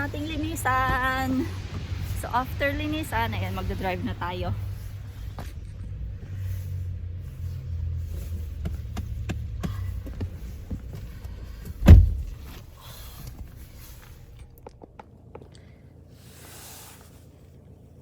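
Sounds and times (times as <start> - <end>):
car engine idling: 0.0 - 18.0
loud heavy thump: 11.8 - 12.6.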